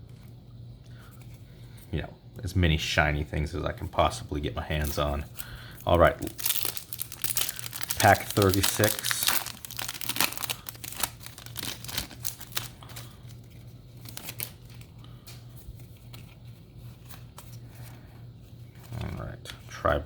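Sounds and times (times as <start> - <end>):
low steady hum: 0.0 - 20.0
foil wrapper tearing and crinkling: 4.7 - 14.9.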